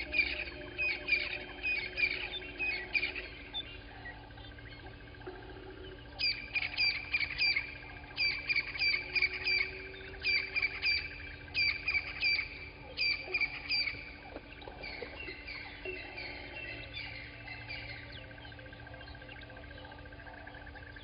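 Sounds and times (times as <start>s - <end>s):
faint steady drone: 0.0s - 21.0s.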